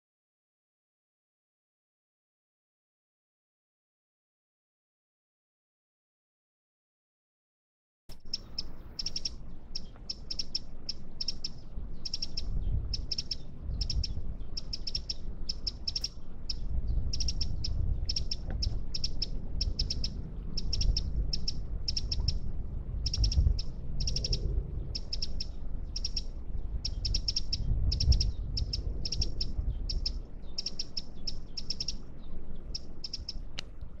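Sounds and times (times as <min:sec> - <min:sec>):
small bird chirping: 0:08.1 - 0:33.8
low rumble: 0:08.1 - 0:34.0.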